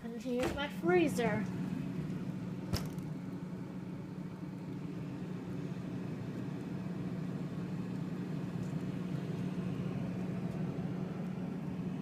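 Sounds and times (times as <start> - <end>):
refrigerator humming: 0.0 - 12.0
refrigerator sharp click: 2.7 - 3.1.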